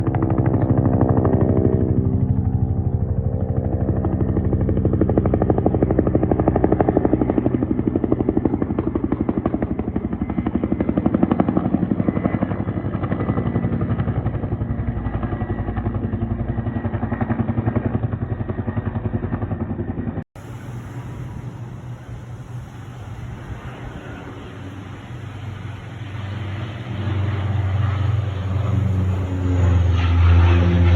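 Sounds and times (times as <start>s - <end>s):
aircraft engine droning: 0.0s - 30.9s
quieter hissy engine: 20.4s - 30.9s.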